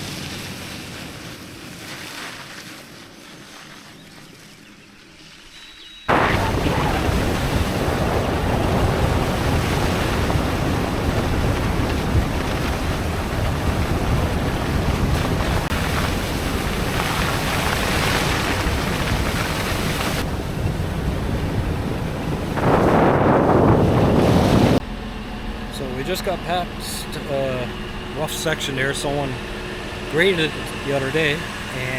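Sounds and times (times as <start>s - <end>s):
mud spray: 0.0s - 4.6s, 6.1s - 20.4s
tyres rushing on gravel: 6.1s - 20.7s
wind on microphone: 6.1s - 24.8s.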